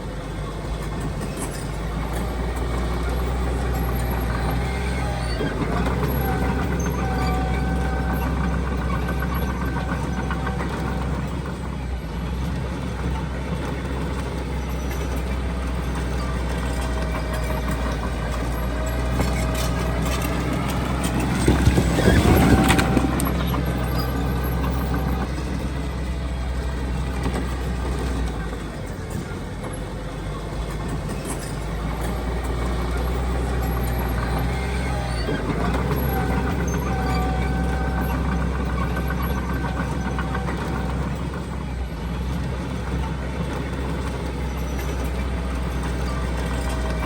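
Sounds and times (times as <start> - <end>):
heavy machinery diesel engines: 0.0 - 47.0.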